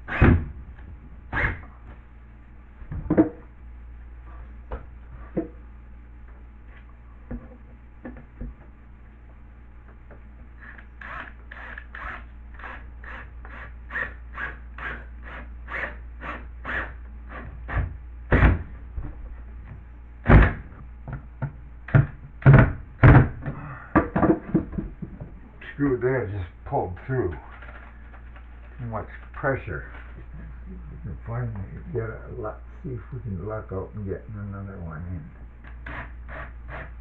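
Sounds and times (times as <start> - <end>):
heavy thumps: 17.7 - 25.5.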